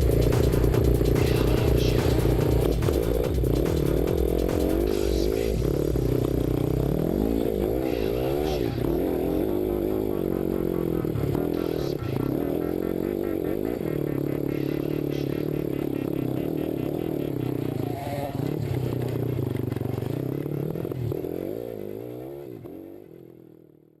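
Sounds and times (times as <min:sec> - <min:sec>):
music: 0:00.0 - 0:06.1
motocross bike engine revving: 0:00.0 - 0:24.0.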